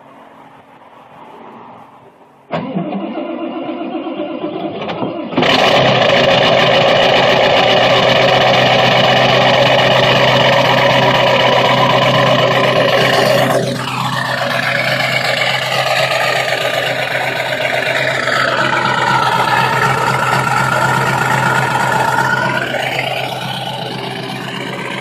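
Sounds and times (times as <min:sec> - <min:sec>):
diesel engine running: 0:05.2 - 0:25.0
starter motor cranking: 0:05.3 - 0:25.0.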